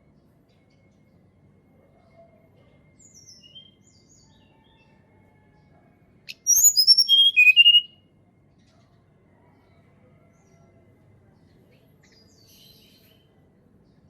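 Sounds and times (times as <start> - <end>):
faint high bird chirps: 1.9 - 5.5, 6.3 - 8.1, 11.7 - 13.4
bird whistling descending notes: 6.4 - 7.9.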